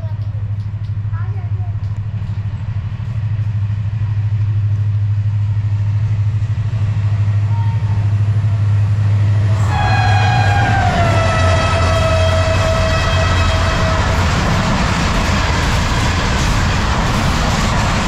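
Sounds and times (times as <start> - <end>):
diesel locomotive engine drone: 0.0 - 18.0
train horn blast: 9.2 - 16.7.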